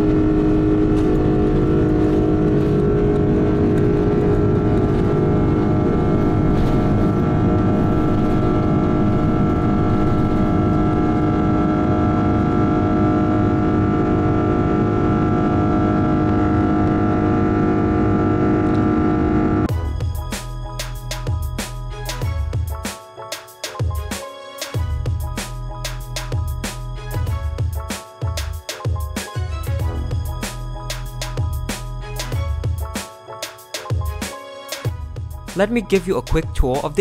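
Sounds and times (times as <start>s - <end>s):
jet engine cabin roar: 0.0s - 21.4s
steady hum and whine: 0.0s - 22.3s.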